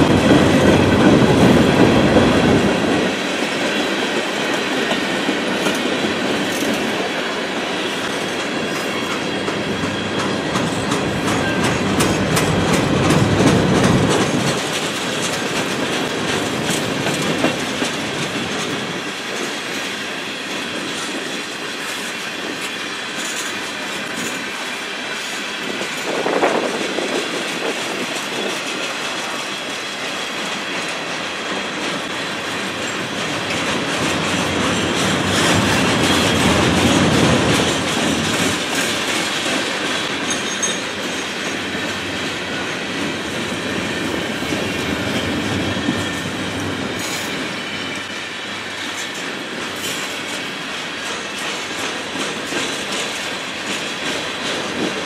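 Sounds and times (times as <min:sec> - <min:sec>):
freight train wheels rumbling: 0:00.0 - 0:55.0
wheels clicking over rail joints: 0:08.0 - 0:29.8, 0:48.8 - 0:55.0.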